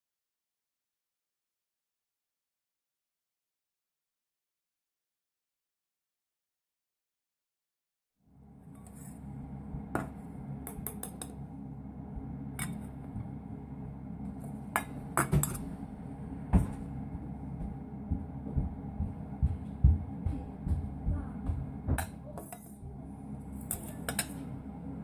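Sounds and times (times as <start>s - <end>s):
steady low rumble: 8.4s - 25.0s
cookware and utensils clinking: 14.7s - 15.7s, 23.6s - 24.5s.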